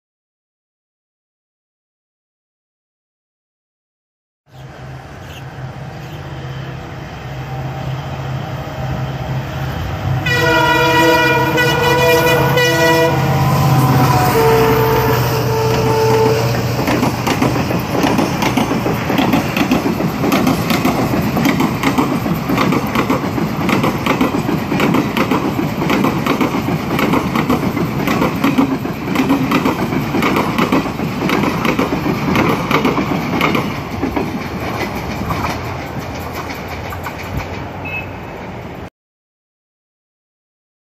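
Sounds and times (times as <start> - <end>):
train rumble: 4.6 - 38.9
train wheels clattering: 15.6 - 38.7.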